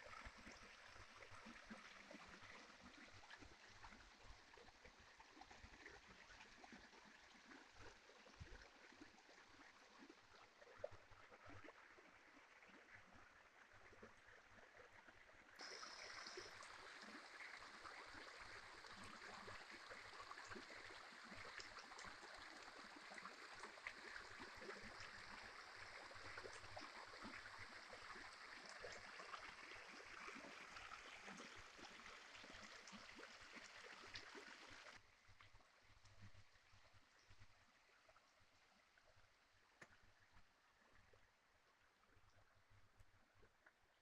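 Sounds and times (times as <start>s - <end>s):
stream babbling: 15.6s - 35.0s.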